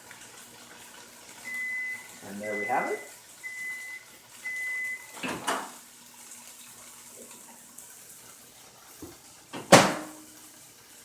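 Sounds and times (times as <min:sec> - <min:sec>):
microwave oven beep: 0:01.4 - 0:05.3.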